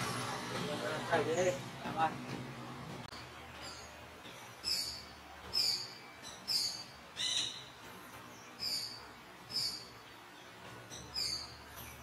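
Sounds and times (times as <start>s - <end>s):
bird calling: 4.6s - 7.8s.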